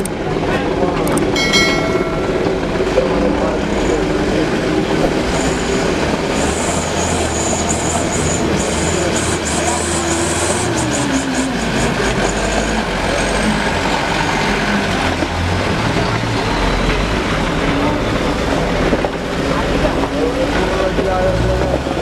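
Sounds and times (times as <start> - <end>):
truck diesel engine labouring: 0.0 - 22.0
high squeal with rapid clatter: 5.3 - 13.6.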